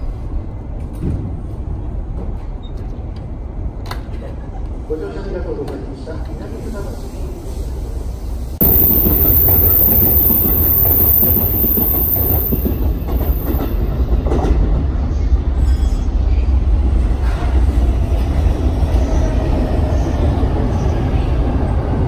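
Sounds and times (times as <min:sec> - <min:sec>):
train wheels rumbling on track: 0:05.5 - 0:22.0.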